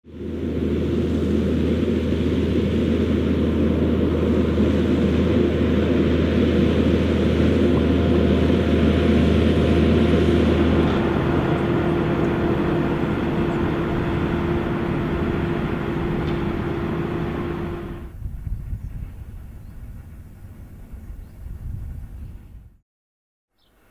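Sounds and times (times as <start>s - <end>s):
tractor diesel engine under load: 0.0s - 18.3s.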